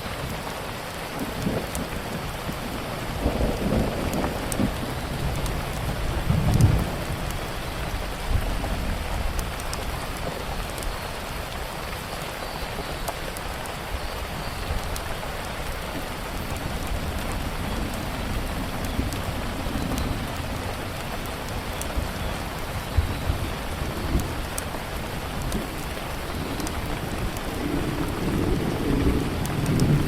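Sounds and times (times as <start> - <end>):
steady rain: 0.0 - 30.0
low rumble of thunder: 1.2 - 9.7, 16.4 - 30.0
wood fire crackling: 13.0 - 30.0.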